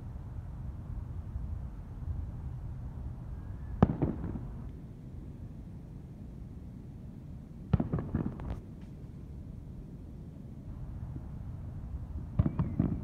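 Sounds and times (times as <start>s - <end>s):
distant fireworks bangs: 3.8s - 4.6s, 7.7s - 8.6s, 12.3s - 13.0s
small firework pops: 3.8s - 4.8s, 7.7s - 9.0s, 12.4s - 13.0s.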